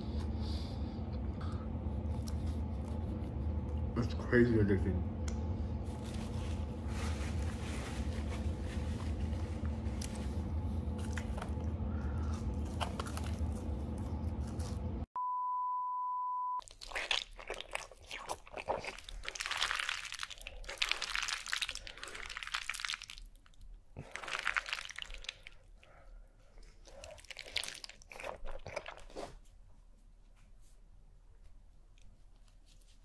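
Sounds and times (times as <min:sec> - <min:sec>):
low hum: 0:00.0 - 0:16.6
man chewing: 0:00.4 - 0:03.9, 0:09.2 - 0:15.1, 0:16.6 - 0:29.5
wet smacking and chewing: 0:02.0 - 0:03.9, 0:10.9 - 0:14.9, 0:16.6 - 0:29.5.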